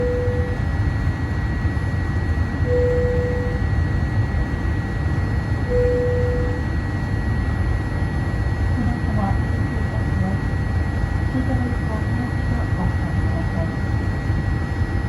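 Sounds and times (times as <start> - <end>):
high-pitched whine: 0.0 - 0.6, 2.6 - 3.7, 5.7 - 6.7
airplane cabin rumble: 0.0 - 15.0.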